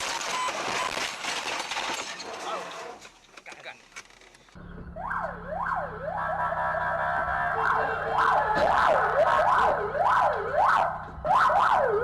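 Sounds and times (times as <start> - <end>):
low vehicle hum: 4.2 - 12.0
police siren wailing and yelping: 4.9 - 12.0.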